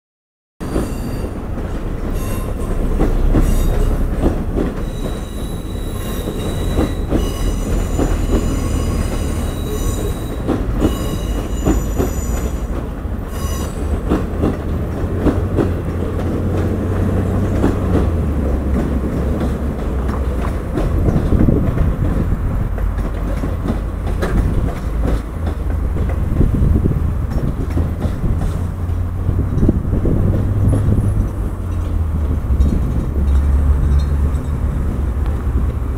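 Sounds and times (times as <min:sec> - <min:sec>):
train wheels squealing: 0:00.6 - 0:14.2
heavy train rumble: 0:00.6 - 0:35.9
wheels clicking over rail joints: 0:00.6 - 0:35.9.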